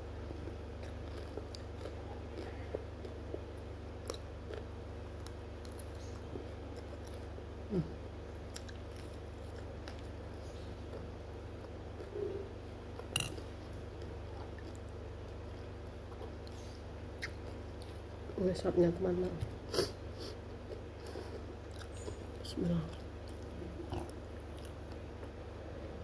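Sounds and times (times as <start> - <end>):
low steady hum: 0.0 - 26.0
biting and chewing fried food: 0.2 - 7.6, 8.4 - 18.3, 20.4 - 25.5.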